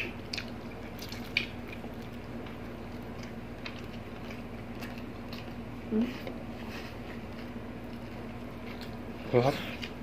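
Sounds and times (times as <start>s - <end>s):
wet chewing and mouth smacks: 0.0s - 5.6s
faint steady hum: 0.0s - 10.0s.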